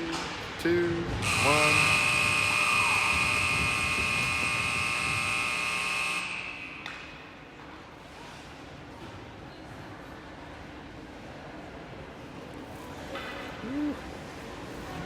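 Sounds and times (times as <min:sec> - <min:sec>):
faint arena background: 0:00.0 - 0:15.0
high-pitched buzzer tone: 0:01.2 - 0:06.9.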